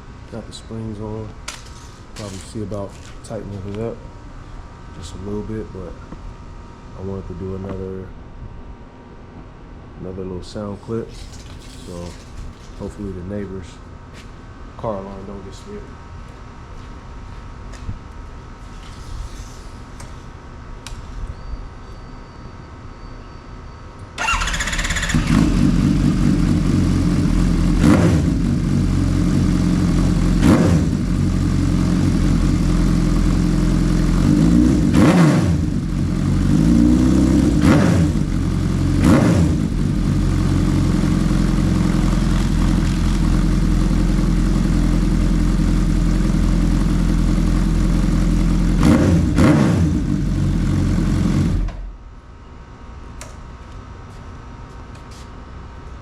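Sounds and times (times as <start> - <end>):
motorcycle engine idling and revving: 24.2 - 52.0.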